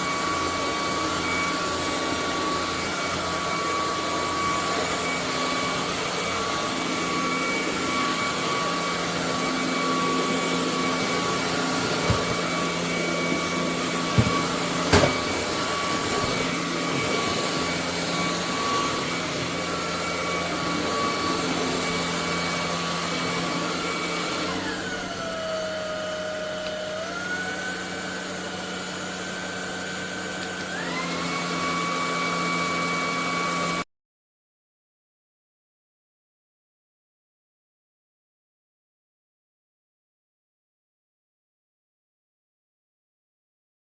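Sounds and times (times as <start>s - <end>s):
stick vacuum cleaner motor whine: 0.0s - 33.8s.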